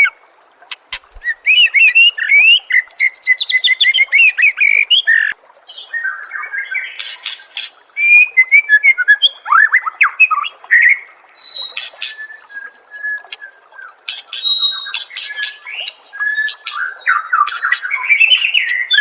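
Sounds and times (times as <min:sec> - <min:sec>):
bird singing whistles and chirps: 0:08.0 - 0:19.0.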